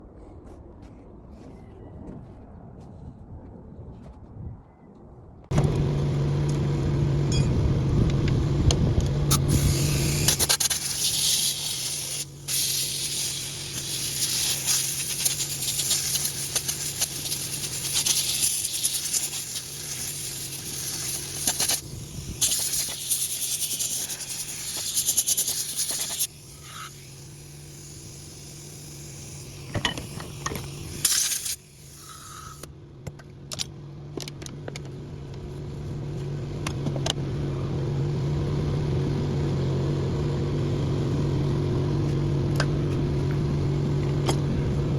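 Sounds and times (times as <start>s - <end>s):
machinery humming: 5.5s - 10.5s.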